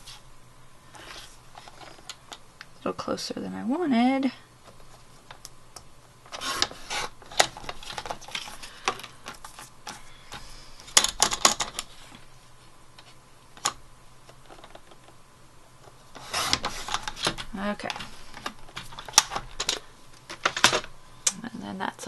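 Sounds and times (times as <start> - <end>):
paper rustling: 15.8 - 20.9.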